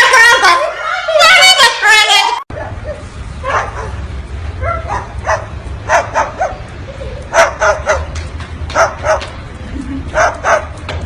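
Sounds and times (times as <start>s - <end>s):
dog yapping barks: 2.6s - 4.0s, 4.6s - 6.6s, 7.3s - 9.4s, 10.2s - 10.8s.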